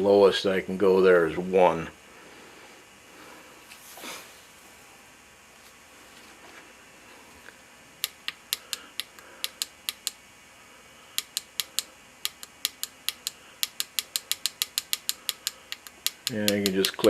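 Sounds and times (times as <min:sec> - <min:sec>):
push-buttons clicking: 0:08.0 - 0:10.2, 0:11.2 - 0:17.0.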